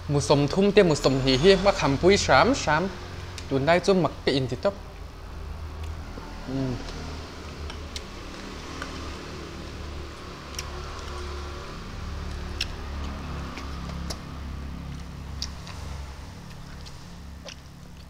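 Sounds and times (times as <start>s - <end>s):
chewing clicks and smacks: 12.2s - 18.0s.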